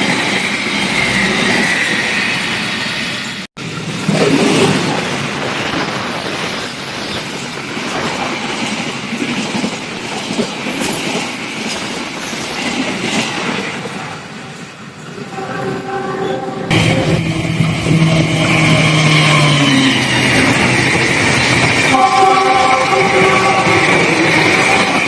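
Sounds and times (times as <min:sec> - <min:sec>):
train wheels clattering on rails: 0:00.0 - 0:14.2, 0:16.7 - 0:25.0.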